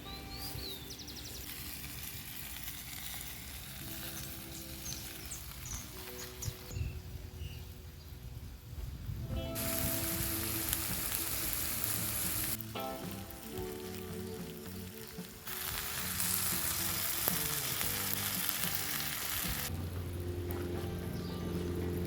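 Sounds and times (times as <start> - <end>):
background music: 0.0 - 1.8, 3.4 - 22.0
food frying sizzle: 0.6 - 6.8, 9.5 - 19.7.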